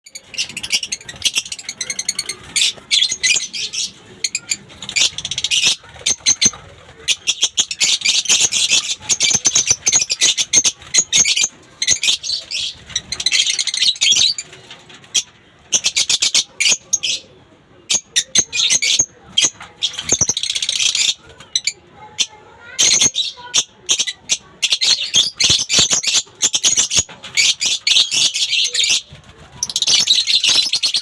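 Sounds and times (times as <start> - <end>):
lovebirds chirping and chattering: 0.0 - 31.0.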